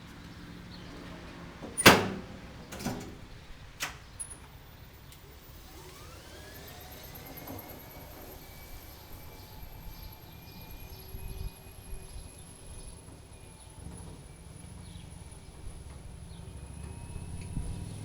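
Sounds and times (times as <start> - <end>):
loud clunk: 1.6 - 4.1
electric motor whine: 5.2 - 13.0.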